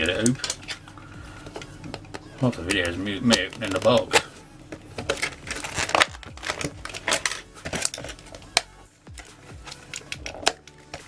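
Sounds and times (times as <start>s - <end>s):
cardboard box crinkling and scraping: 5.0s - 8.6s.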